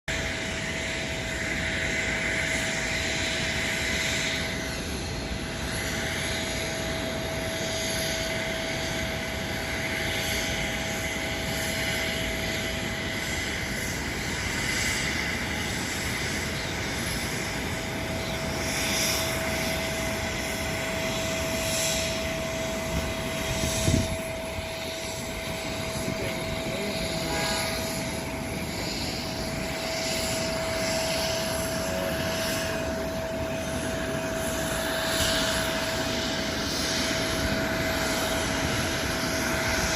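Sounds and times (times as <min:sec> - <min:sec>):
jet engines running: 0:00.1 - 0:39.9.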